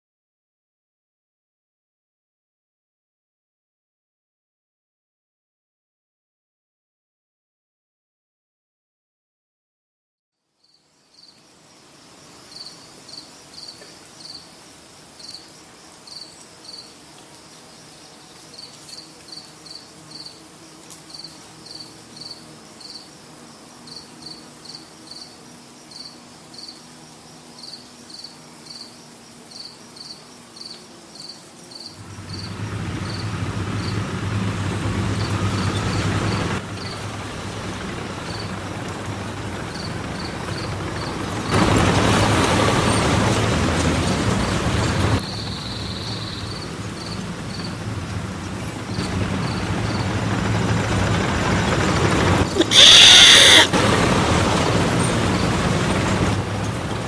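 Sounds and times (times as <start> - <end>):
crickets chirping: 10.6 - 20.8, 52.5 - 53.7.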